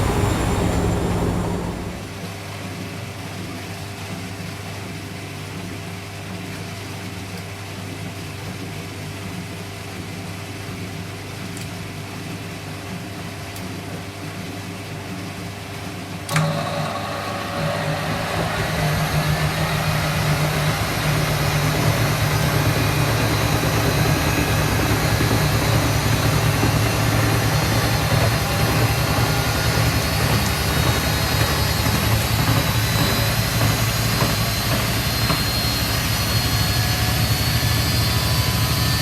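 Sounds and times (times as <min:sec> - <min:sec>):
washing machine drum speeding up: 0:00.0 - 0:02.3, 0:17.1 - 0:39.0
washing machine motor hum: 0:00.0 - 0:02.3, 0:16.3 - 0:39.0.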